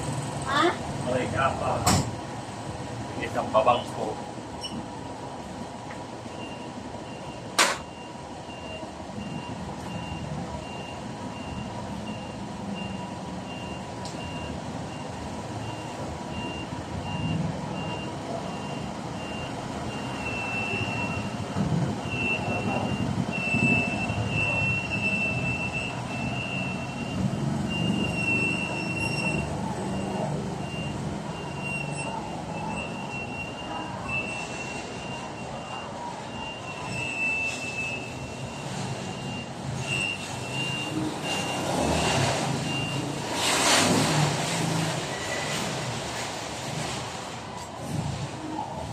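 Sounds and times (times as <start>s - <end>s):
engine rumble: 0.0s - 48.9s
reversing alarm beeping: 6.2s - 21.4s, 22.0s - 43.2s.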